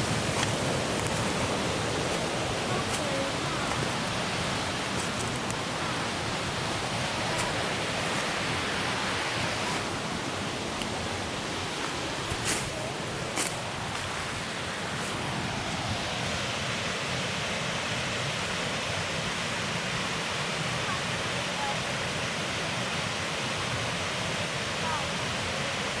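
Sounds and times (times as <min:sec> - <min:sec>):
waterfall and creek rushing: 0:00.0 - 0:26.0.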